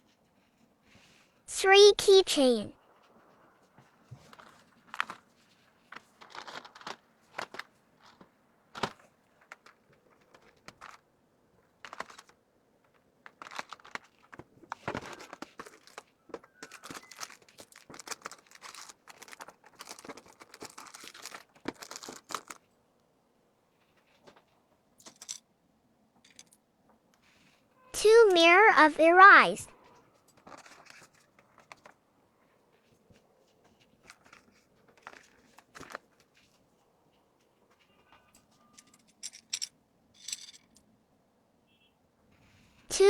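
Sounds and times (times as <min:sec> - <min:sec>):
plastic packaging crinkling: 0:04.3 - 0:11.0, 0:11.8 - 0:22.7.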